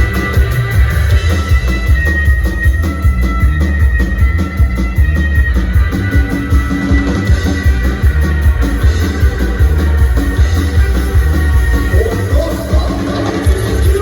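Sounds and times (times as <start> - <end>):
driving drum beat: 0.0 - 14.0
electric guitar: 0.0 - 14.0
heavy bass: 0.0 - 14.0.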